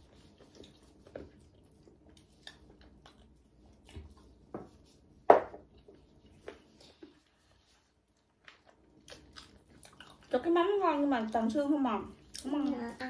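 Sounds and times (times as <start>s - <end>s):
chewing and gnawing: 0.0s - 4.5s, 5.7s - 13.0s
small mouth clicks and smacks: 0.6s - 4.0s, 8.4s - 10.3s.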